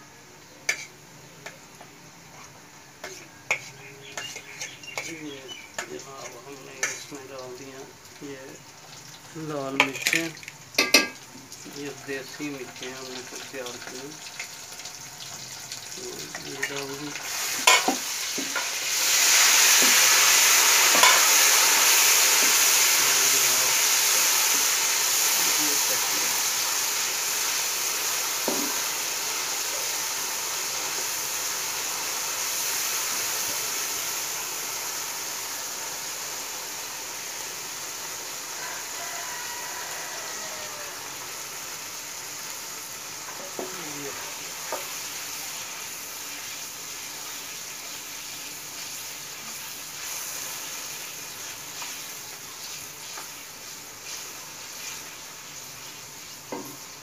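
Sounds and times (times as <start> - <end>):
onions sizzling in hot oil: 0.0 - 57.0
wooden spoon scraping a pan: 0.7 - 1.6, 2.3 - 7.1.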